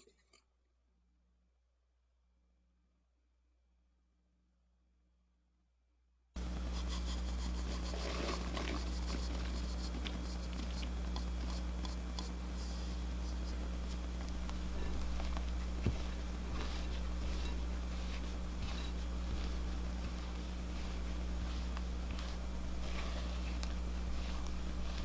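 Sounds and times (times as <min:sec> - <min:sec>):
steady low hum: 0:06.4 - 0:25.0
spatula scraping batter in bowl: 0:06.5 - 0:25.0.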